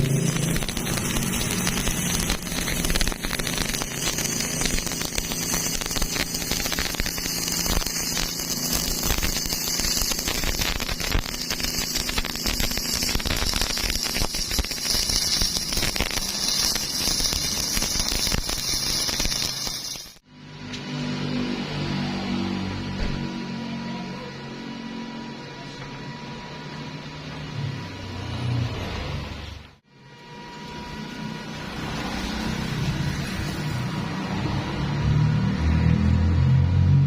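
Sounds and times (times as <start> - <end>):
welding arc crackling: 0.0 - 20.3, 30.7 - 37.0.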